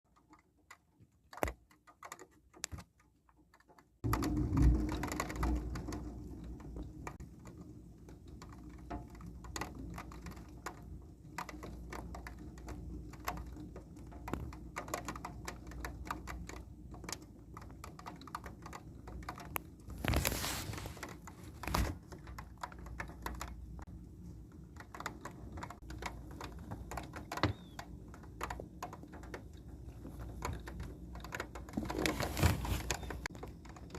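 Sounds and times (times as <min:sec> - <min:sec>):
rain pattering and dripping: 0:03.3 - 0:33.9
low steady rumble: 0:04.0 - 0:14.8.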